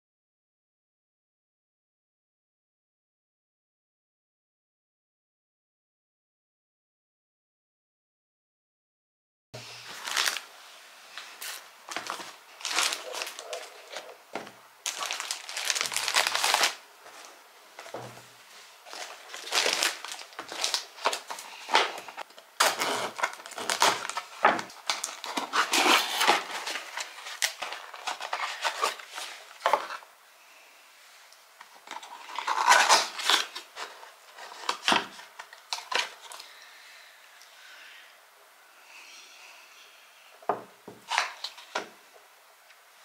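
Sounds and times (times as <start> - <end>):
packaging crinkling by hand: 9.8 - 10.5, 11.1 - 18.0, 18.8 - 30.0, 31.8 - 36.5, 41.1 - 41.8.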